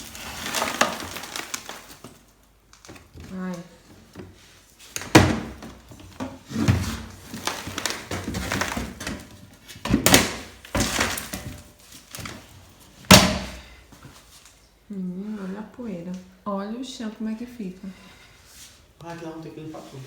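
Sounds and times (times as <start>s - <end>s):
scraping ash: 0.0s - 2.2s.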